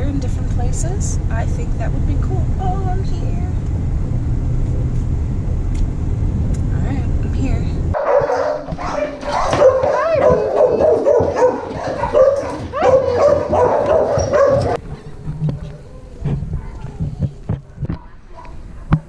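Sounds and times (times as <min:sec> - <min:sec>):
dog whining and yipping: 0:08.1 - 0:17.0.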